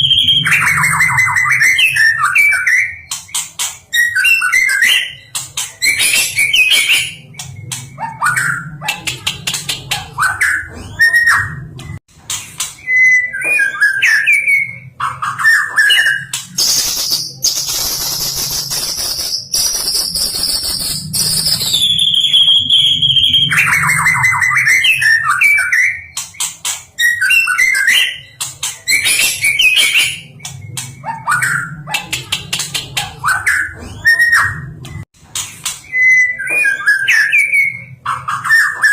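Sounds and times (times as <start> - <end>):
songbird whistling song: 0.0 - 8.9, 12.8 - 31.9, 35.8 - 38.9
bird trill: 0.0 - 11.6, 12.8 - 34.8, 35.8 - 38.9.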